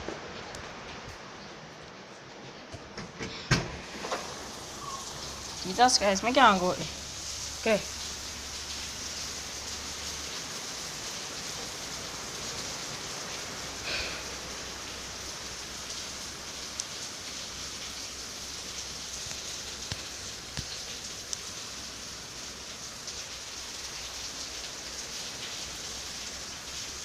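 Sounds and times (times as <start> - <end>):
steady rain hiss: 0.0 - 27.0
sharp raindrop taps: 15.7 - 22.2.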